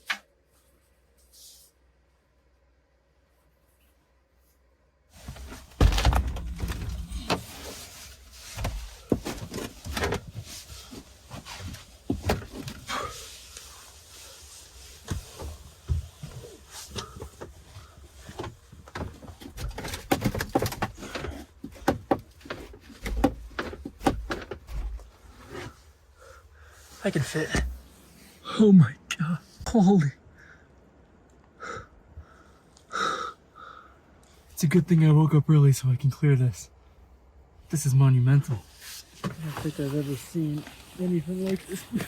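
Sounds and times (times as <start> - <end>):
van door thuds and rattles: 5.2 - 7.6.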